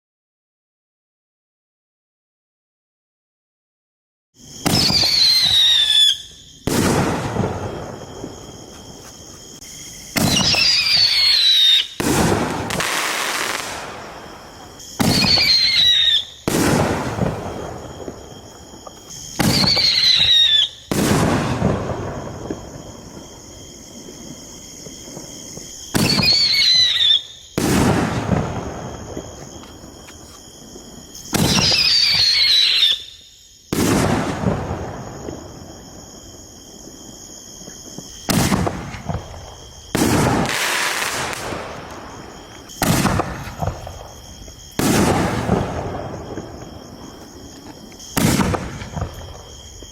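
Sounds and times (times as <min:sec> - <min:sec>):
firework shell whistling: 0:04.5 - 0:23.2, 0:25.1 - 0:30.4, 0:31.0 - 0:35.6, 0:38.0 - 0:47.3
firework boom rumbling: 0:38.3 - 0:47.4, 0:48.2 - 0:49.9.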